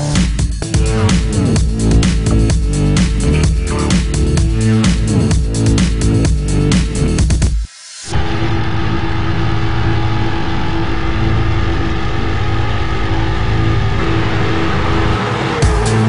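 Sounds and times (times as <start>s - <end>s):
music: 0.0s - 16.0s
car engine at steady revs: 9.5s - 16.0s.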